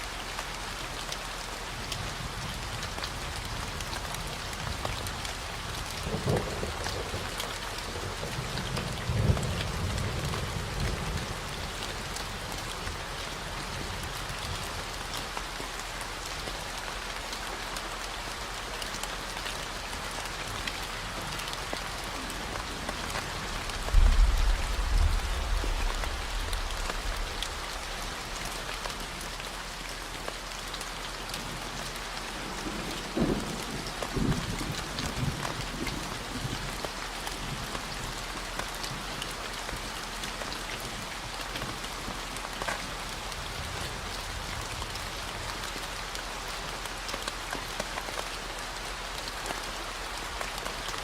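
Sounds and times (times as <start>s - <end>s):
steady rain: 0.0s - 51.0s
rolls of thunder: 23.7s - 27.6s.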